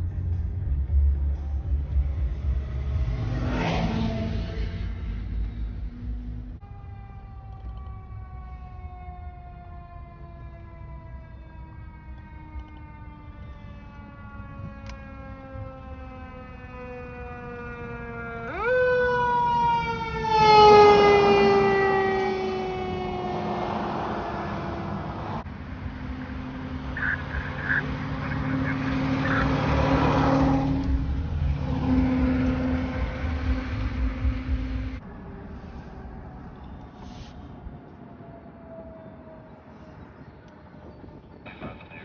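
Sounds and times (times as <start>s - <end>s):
fire truck siren wailing: 6.6s - 40.4s
truck engine rumbling past: 14.4s - 37.9s.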